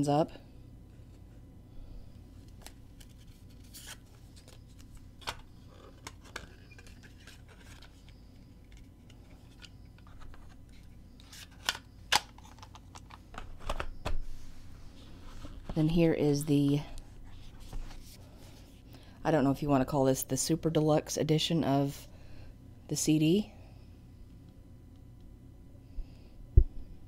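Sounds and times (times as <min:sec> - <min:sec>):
faint low hum: 0:00.0 - 0:27.0
cassette case clicks and rustles: 0:09.5 - 0:14.2.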